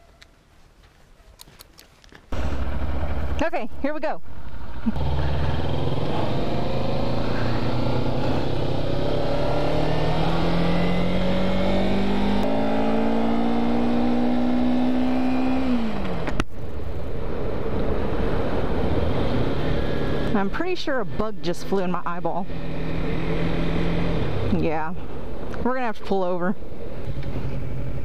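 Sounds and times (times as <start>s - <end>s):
motorcycle engine accelerating: 2.3s - 25.5s
wind rush: 16.6s - 20.3s.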